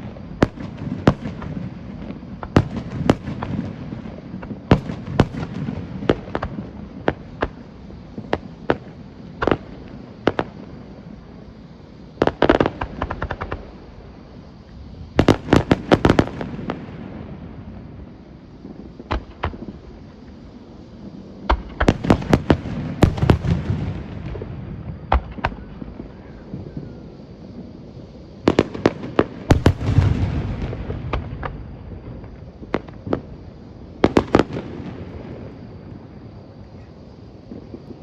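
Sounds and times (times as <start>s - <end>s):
fireworks cracking and popping: 0.0s - 10.6s, 12.2s - 13.9s, 14.7s - 16.9s, 18.6s - 20.4s, 21.4s - 26.9s, 28.5s - 35.7s.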